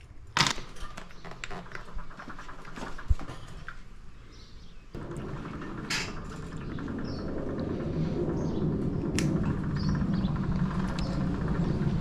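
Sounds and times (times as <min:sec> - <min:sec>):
engine running: 0:05.0 - 0:12.0.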